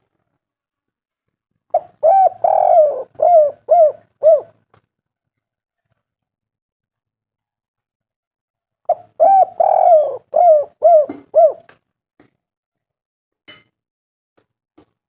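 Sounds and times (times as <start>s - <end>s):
dove cooing: 1.7s - 4.6s, 8.9s - 11.8s.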